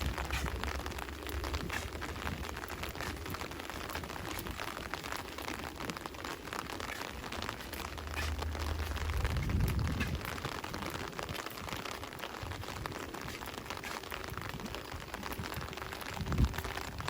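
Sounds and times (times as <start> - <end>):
low rumble: 0.0 - 4.7, 7.3 - 11.0
rain drops hitting: 0.0 - 17.0
rain hiss: 0.0 - 17.0.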